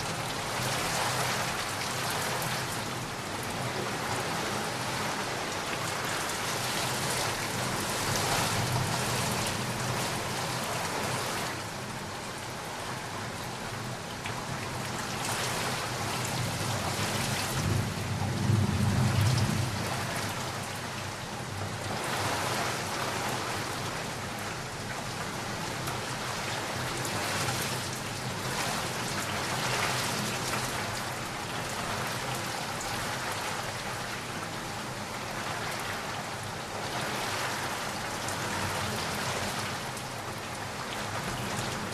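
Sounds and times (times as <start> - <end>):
steady rain falling: 0.0 - 41.9
low roll of thunder: 17.4 - 20.6.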